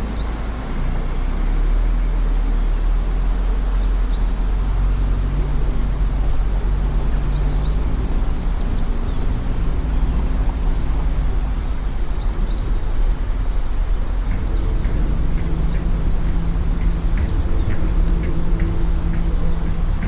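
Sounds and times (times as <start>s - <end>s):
steady low rumble: 5.0s - 20.0s.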